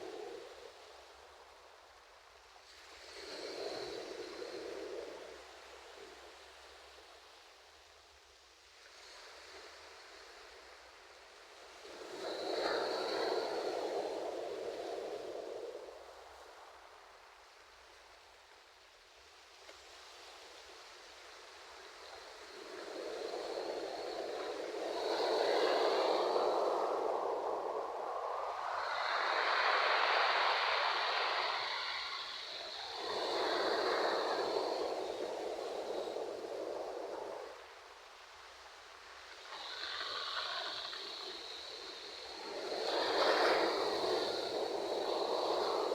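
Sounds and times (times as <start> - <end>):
ocean wave breaking: 24.0 - 37.6.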